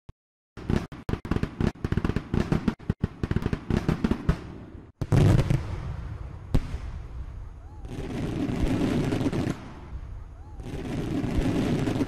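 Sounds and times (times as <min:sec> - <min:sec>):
fireworks crackling bangs: 0:00.6 - 0:12.0
deep firework boom: 0:05.0 - 0:12.0.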